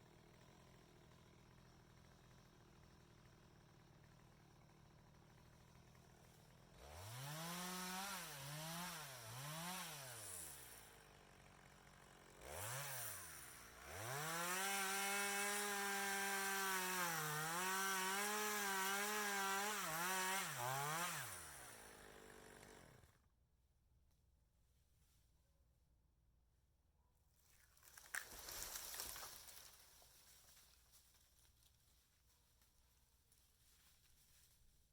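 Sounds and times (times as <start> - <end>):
chainsaw engine revving: 0.1 - 23.2.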